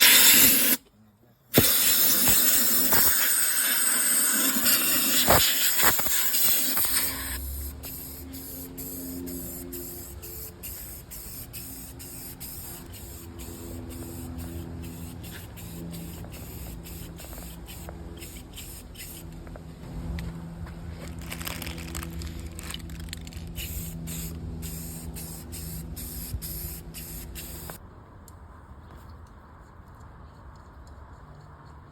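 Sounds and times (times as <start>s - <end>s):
aerosol spray paint hissing: 0.0s - 0.8s, 1.6s - 19.3s, 22.9s - 27.8s.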